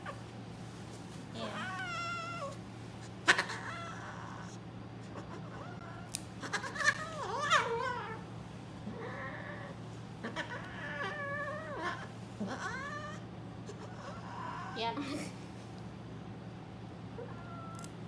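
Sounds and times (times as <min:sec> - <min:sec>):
cat yowling: 0:01.4 - 0:02.6, 0:03.3 - 0:08.2, 0:08.9 - 0:15.0, 0:17.2 - 0:17.9.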